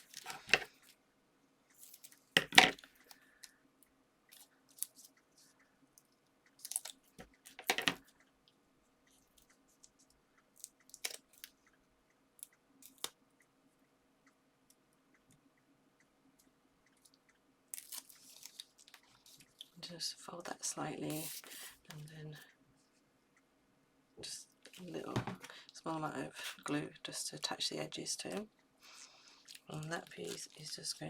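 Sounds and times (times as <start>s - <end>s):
paper crinkling and tapping: 29.5s - 31.0s.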